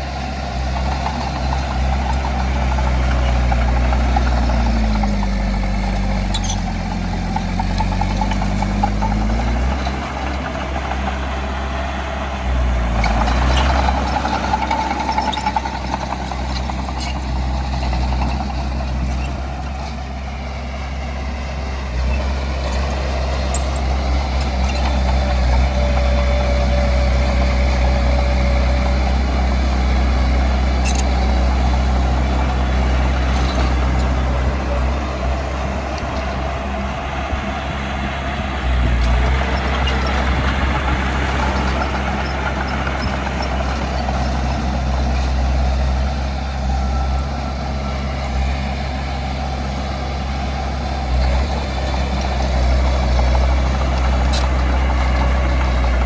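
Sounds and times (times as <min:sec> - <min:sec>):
heavy diesel machinery engine: 0:00.0 - 0:56.0.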